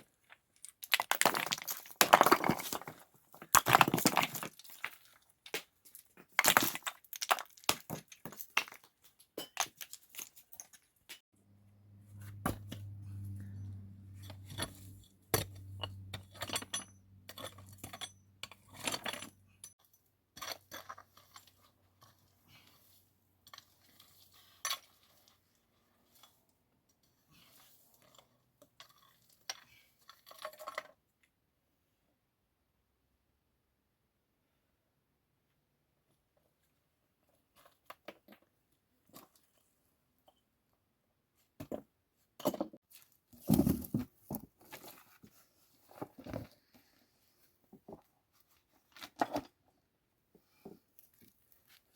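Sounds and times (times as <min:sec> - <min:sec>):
hard objects clinking and knocking: 0:00.2 - 0:11.2, 0:14.1 - 0:21.5
low steady hum: 0:11.4 - 0:17.9.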